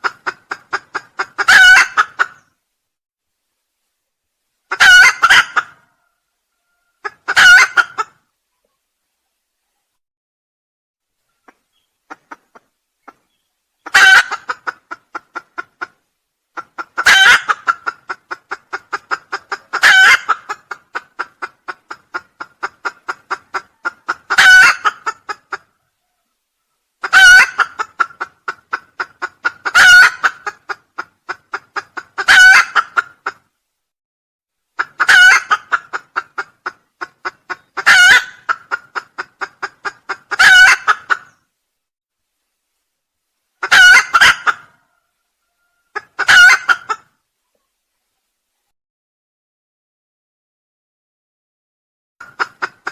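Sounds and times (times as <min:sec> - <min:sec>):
junglefowl crowing: 0:00.0 - 0:02.4, 0:04.7 - 0:08.2, 0:13.8 - 0:15.4, 0:16.6 - 0:21.4, 0:22.1 - 0:28.6, 0:29.4 - 0:30.7, 0:32.2 - 0:33.4, 0:34.8 - 0:36.4, 0:37.2 - 0:38.8, 0:39.6 - 0:41.4, 0:43.6 - 0:47.1.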